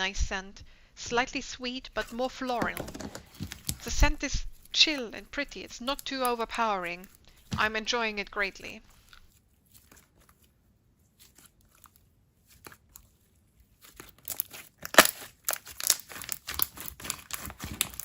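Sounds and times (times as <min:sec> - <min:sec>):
slime squished by hand crackling: 0:13.8 - 0:18.0.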